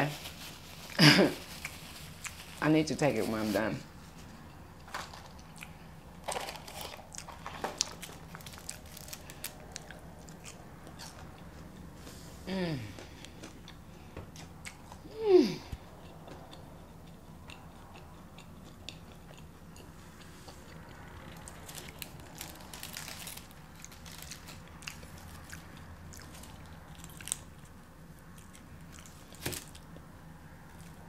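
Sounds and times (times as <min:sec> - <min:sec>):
person chewing and biting food: 0:00.9 - 0:02.4, 0:05.3 - 0:11.9, 0:12.8 - 0:15.1, 0:15.7 - 0:30.1.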